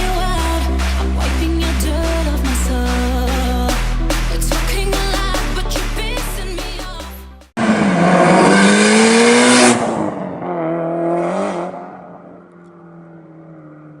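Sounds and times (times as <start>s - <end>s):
turbocharged car engine revving: 7.6s - 14.0s.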